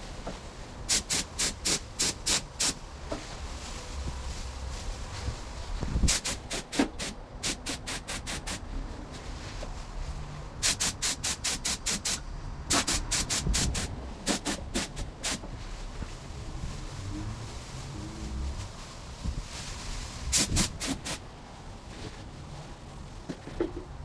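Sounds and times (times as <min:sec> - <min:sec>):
spray gun hissing bursts: 0:00.9 - 0:02.8, 0:06.1 - 0:08.6, 0:10.6 - 0:15.5, 0:20.2 - 0:21.2.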